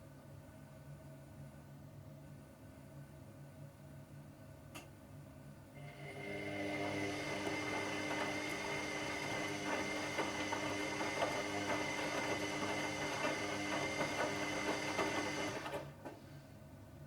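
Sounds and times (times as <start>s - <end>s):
washing machine motor whine: 5.8s - 16.0s
washing machine rattling: 6.9s - 15.9s.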